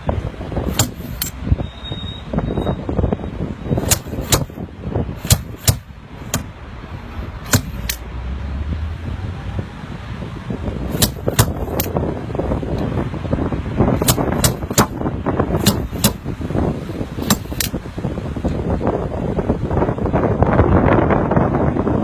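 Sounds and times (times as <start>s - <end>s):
hammer tapping sheet metal: 0.7s - 1.4s, 3.8s - 4.6s, 5.2s - 6.5s, 7.5s - 8.0s, 10.9s - 11.9s, 14.0s - 15.0s, 15.6s - 16.2s, 17.2s - 17.8s.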